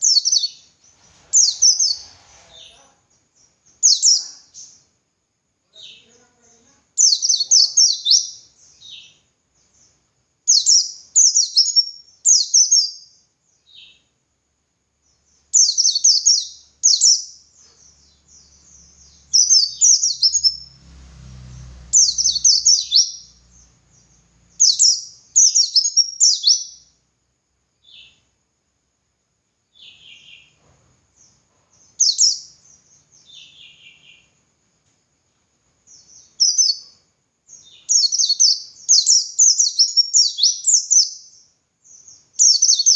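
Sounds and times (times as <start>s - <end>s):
bird chirping rapidly: 0.0s - 4.8s, 7.0s - 14.0s, 15.3s - 26.9s, 31.8s - 34.4s, 35.9s - 42.9s
faint low rumble: 17.8s - 25.4s.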